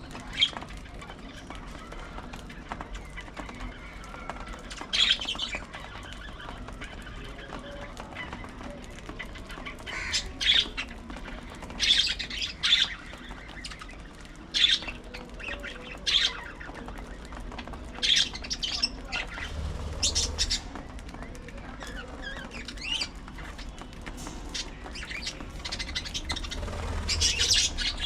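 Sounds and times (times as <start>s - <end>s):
budgerigars chattering: 9.9s - 10.8s, 18.0s - 20.8s, 24.5s - 28.0s.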